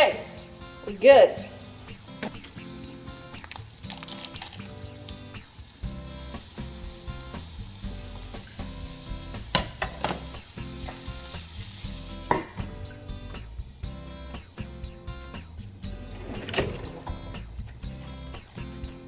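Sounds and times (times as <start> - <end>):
liver sizzling in a skillet: 0.0 - 16.1, 16.8 - 19.0
lid clanking on pan: 9.5 - 11.1, 12.3 - 12.7.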